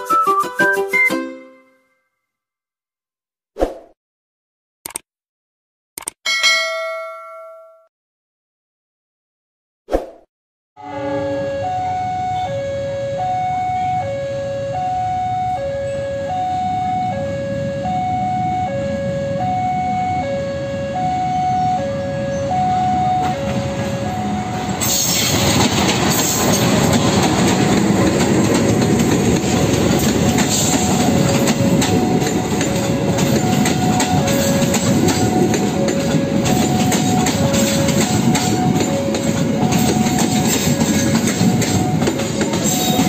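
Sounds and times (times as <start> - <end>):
level crossing two-tone alarm: 10.8 - 24.9, 30.2 - 43.0
train wheels rumbling on rails: 23.1 - 43.0.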